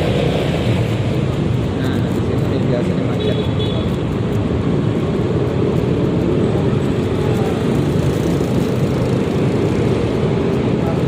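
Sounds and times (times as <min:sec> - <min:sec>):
wind and road noise: 0:00.0 - 0:11.0
scooter engine running: 0:03.9 - 0:11.0.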